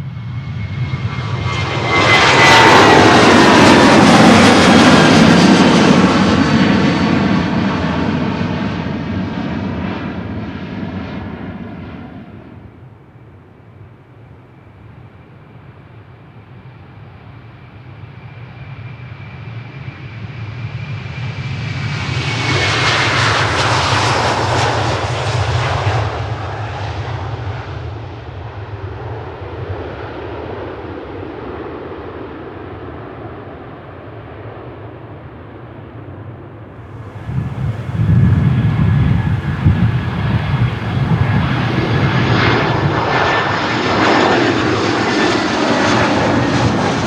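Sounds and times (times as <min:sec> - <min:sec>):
jet taking off: 0:00.0 - 0:12.8, 0:36.8 - 0:47.0.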